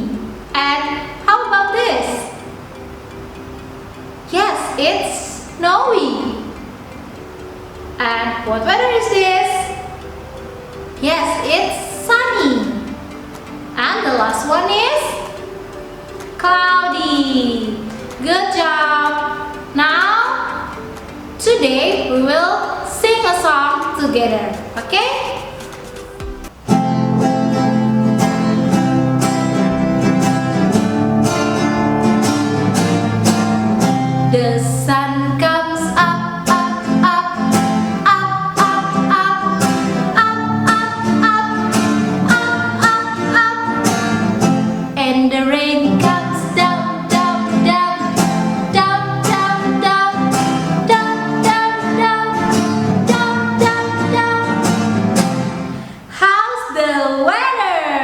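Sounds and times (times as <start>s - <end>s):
acoustic guitar strumming: 0.0s - 56.1s
person singing: 34.3s - 44.4s, 45.0s - 55.0s.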